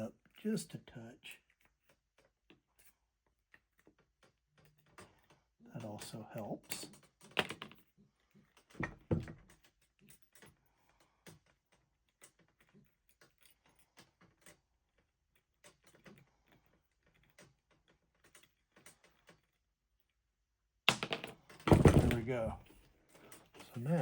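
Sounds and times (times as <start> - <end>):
metal parts clicking and tapping: 1.4 - 20.1.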